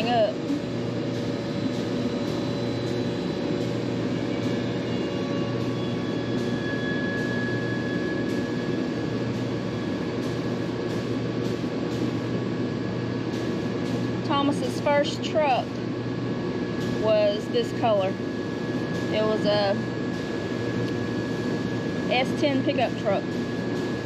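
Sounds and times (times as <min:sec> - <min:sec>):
low electric hum: 0:00.0 - 0:24.0
machine drone: 0:00.0 - 0:24.0.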